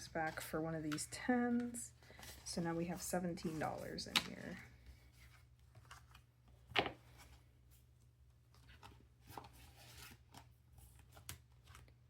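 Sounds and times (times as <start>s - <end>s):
paper rustling: 0.2s - 7.4s.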